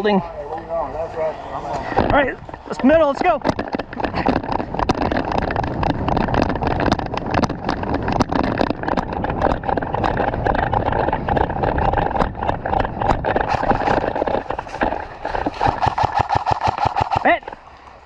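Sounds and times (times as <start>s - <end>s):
hurried footsteps: 1.6s - 18.0s
microphone movement rumble: 1.7s - 17.6s
rattling gear: 2.0s - 17.7s.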